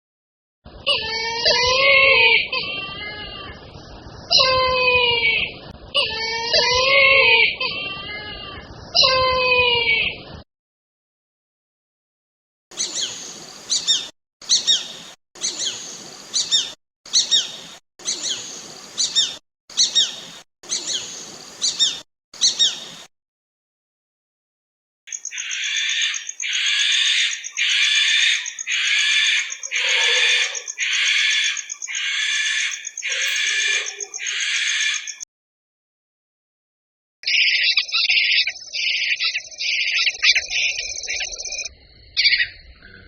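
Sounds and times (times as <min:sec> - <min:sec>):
bird of prey calls: 0:12.8 - 0:22.8, 0:25.1 - 0:35.2.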